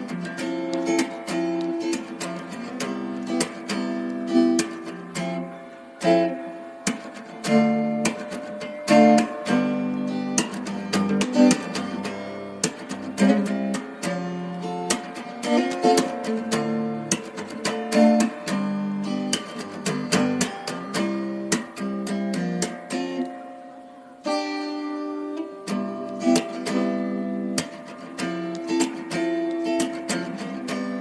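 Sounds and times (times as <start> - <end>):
acoustic guitar music: 0.0 - 31.0.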